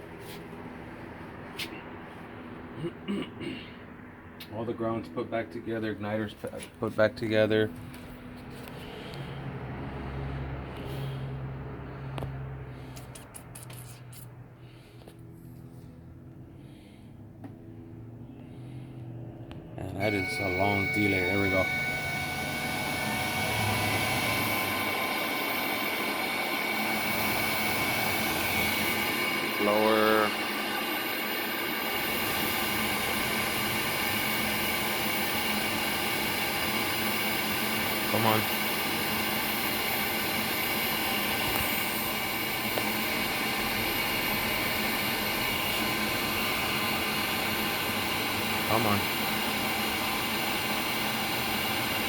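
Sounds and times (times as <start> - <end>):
water heater blower running: 20.0 - 52.0.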